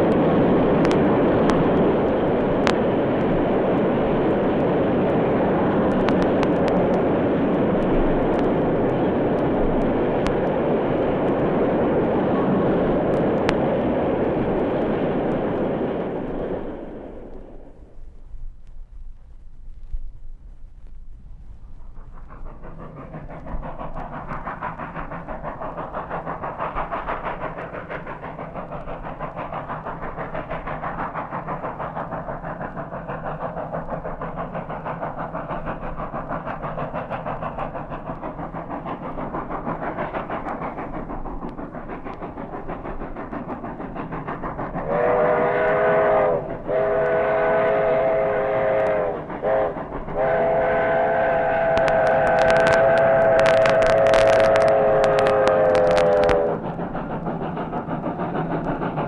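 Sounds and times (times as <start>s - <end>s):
steam locomotive exhaust beat: 0.0s - 59.0s
steam whistle chord blasts: 44.9s - 56.6s.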